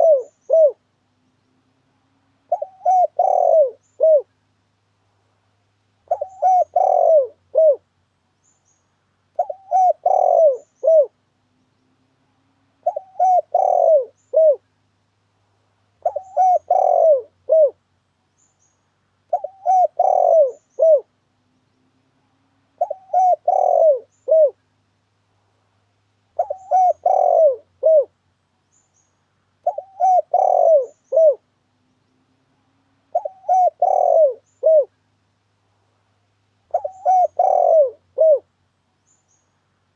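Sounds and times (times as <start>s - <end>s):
dove cooing: 0.0s - 0.8s, 2.4s - 4.3s, 6.0s - 7.8s, 9.4s - 11.2s, 12.8s - 14.6s, 16.0s - 17.8s, 19.3s - 21.2s, 22.8s - 24.6s, 26.4s - 28.1s, 29.6s - 31.5s, 33.0s - 35.0s, 36.7s - 38.5s.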